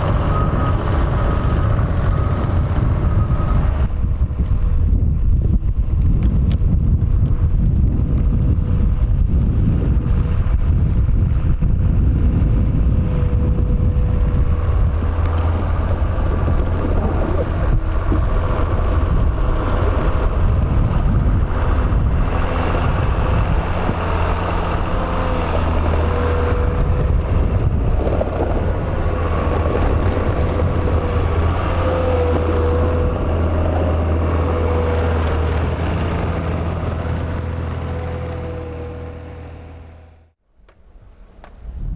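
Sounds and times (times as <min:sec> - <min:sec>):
diesel locomotive engines droning: 0:00.0 - 0:05.9, 0:08.2 - 0:40.4
wind noise on microphone: 0:00.0 - 0:40.2, 0:40.8 - 0:41.9.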